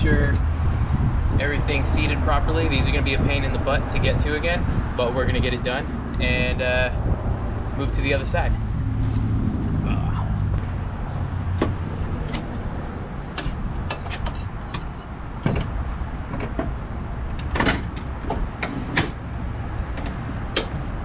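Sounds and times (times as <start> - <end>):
metal parts knocking and clanking: 13.3 - 19.2.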